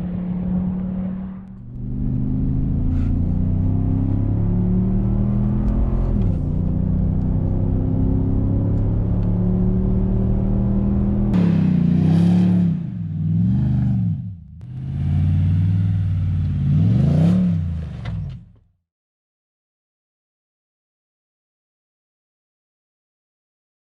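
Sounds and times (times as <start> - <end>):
car engine idling and revving: 0.0 - 18.8.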